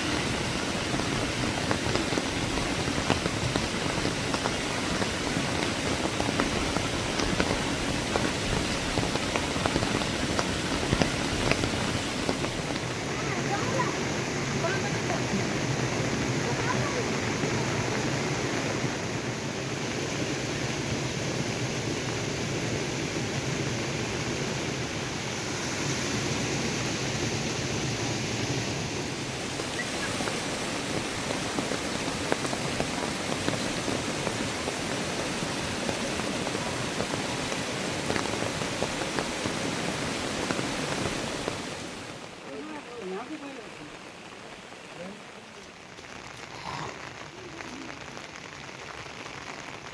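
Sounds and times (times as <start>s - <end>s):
heavy rain: 0.0s - 49.9s
rain drop ticks: 0.1s - 18.8s, 29.5s - 49.9s.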